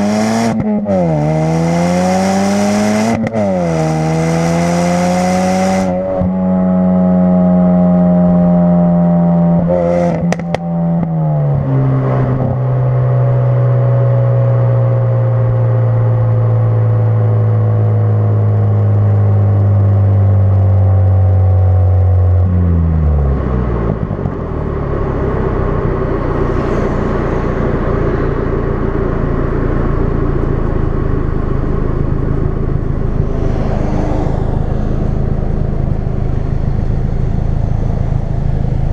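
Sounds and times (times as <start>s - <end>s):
car engine steady note: 0.0s - 38.9s
low rough engine rumble: 10.4s - 38.9s.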